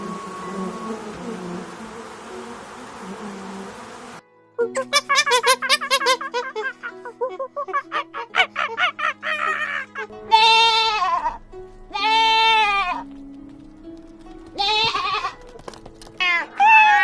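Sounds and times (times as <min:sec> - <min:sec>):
background music: 0:00.4 - 0:17.0
long bleats: 0:10.1 - 0:13.1, 0:14.6 - 0:15.4.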